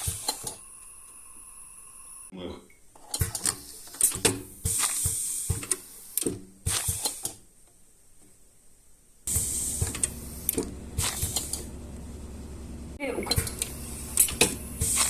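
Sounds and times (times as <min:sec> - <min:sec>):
machine hissing: 0:00.0 - 0:02.3, 0:03.6 - 0:07.4, 0:09.3 - 0:15.0
machine clicking and clacking: 0:13.2 - 0:15.0.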